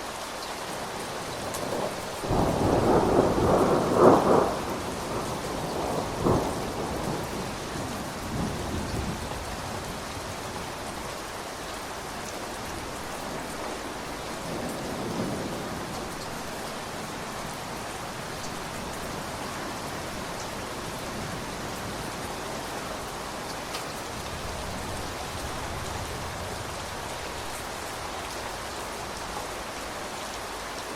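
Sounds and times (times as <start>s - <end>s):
steady rain: 0.0s - 30.9s
thunder rumbling: 1.5s - 10.9s.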